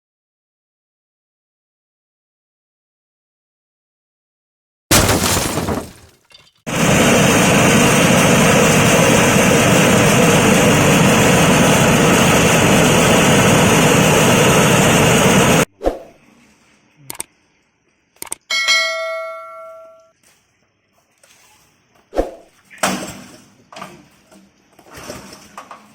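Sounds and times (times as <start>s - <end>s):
leaf chopping machine running: 6.7s - 15.6s
metallic ring: 18.5s - 20.1s.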